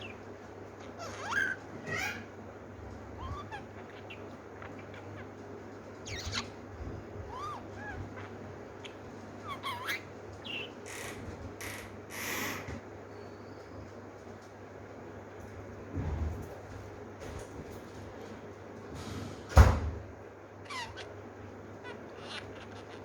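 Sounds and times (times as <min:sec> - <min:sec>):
lovebird chirping and squeaking: 0:00.0 - 0:02.3, 0:03.2 - 0:05.4, 0:06.0 - 0:12.7, 0:20.6 - 0:21.2, 0:21.8 - 0:23.0
harsh bird calls: 0:00.0 - 0:13.9, 0:20.6 - 0:23.0.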